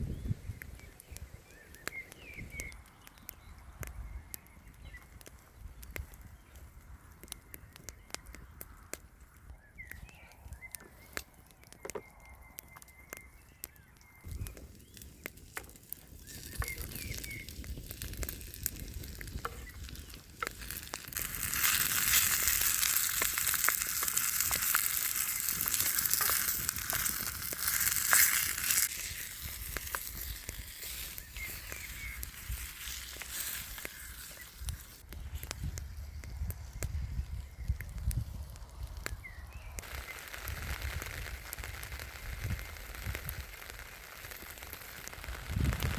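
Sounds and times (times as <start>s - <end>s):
campfire crackles: 0.0s - 45.9s
food sizzling in a pan: 19.4s - 35.0s, 39.8s - 45.9s.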